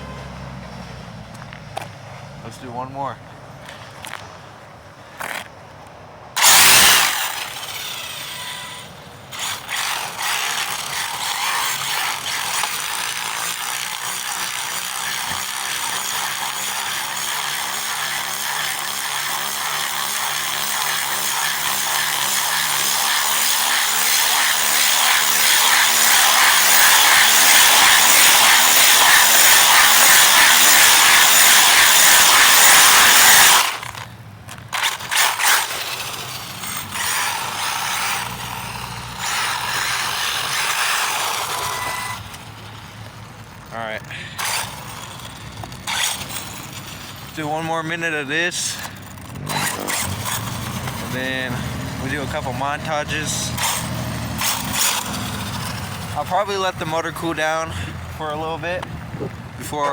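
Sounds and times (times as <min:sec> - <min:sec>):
wheels sliding on ground: 0:05.0 - 0:05.6, 0:06.4 - 0:59.9
electric motor whining: 0:06.4 - 0:59.9.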